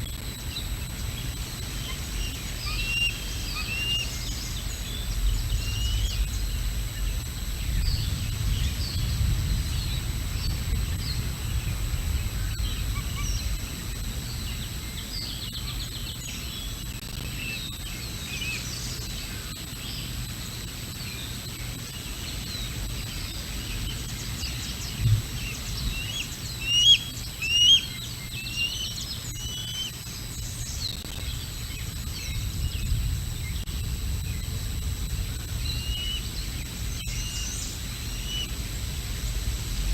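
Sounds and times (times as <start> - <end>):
small birds chirping: 0.4 - 38.8
wind rumble on microphone: 4.3 - 15.1, 23.7 - 26.5, 31.2 - 39.9.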